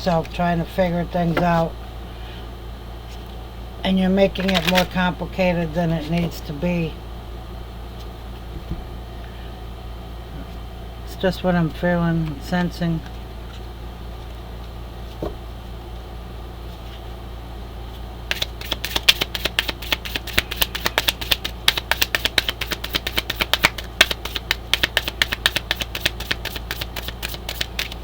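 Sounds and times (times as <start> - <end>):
steady low hum: 0.0 - 28.0
cards being shuffled: 4.4 - 5.0, 18.3 - 28.0.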